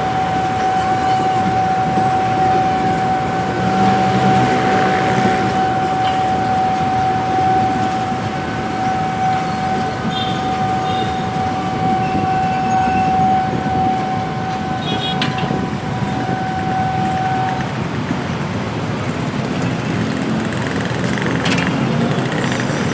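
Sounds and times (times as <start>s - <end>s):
high-pitched squeal: 0.0s - 17.8s
train wheels rumbling on rails: 0.0s - 22.9s.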